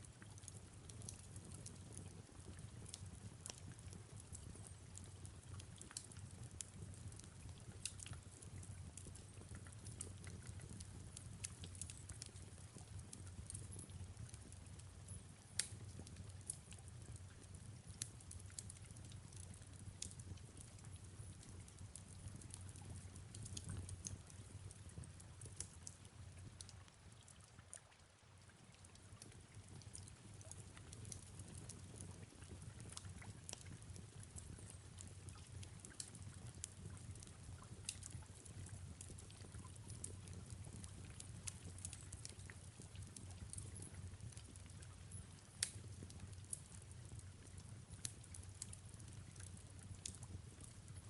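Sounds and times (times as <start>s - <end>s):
faint fireplace crackling: 0.0s - 51.0s
soft rain: 0.0s - 51.0s.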